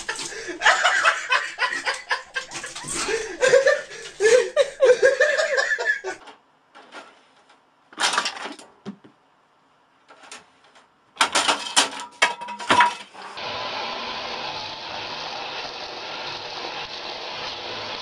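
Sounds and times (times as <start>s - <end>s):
person laughing: 0.0s - 6.2s.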